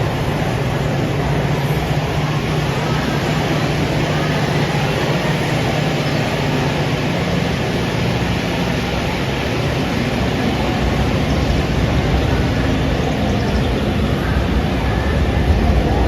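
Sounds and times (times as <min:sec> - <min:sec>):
train running: 0:00.0 - 0:16.0.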